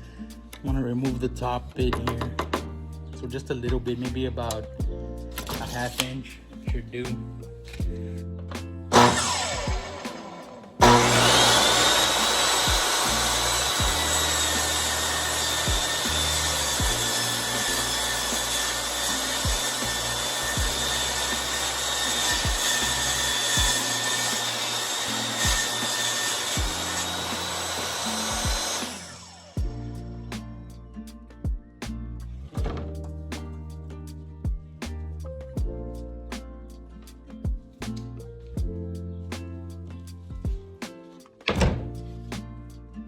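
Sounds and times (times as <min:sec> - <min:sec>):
background music: 0:00.0 - 0:43.0
table saw whining: 0:08.9 - 0:29.6.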